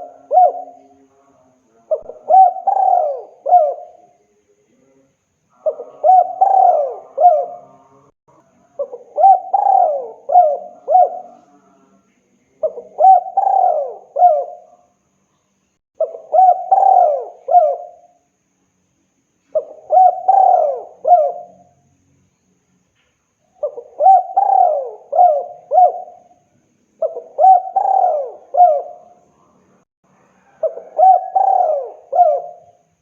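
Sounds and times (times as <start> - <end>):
dove cooing: 0.0 - 1.0, 1.9 - 4.1, 5.6 - 8.0, 8.8 - 11.6, 12.6 - 14.8, 16.0 - 18.2, 19.5 - 21.7, 23.5 - 26.4, 27.0 - 29.2, 30.4 - 32.9.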